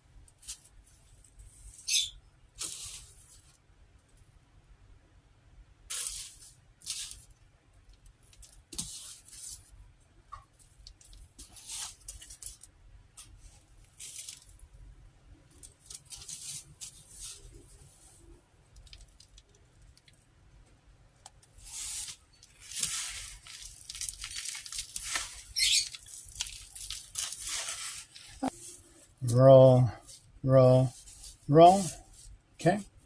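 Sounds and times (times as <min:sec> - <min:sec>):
breadcrumbs rustling and crunching: 0:05.9 - 0:09.8, 0:10.6 - 0:20.1, 0:21.6 - 0:29.2, 0:30.0 - 0:32.4.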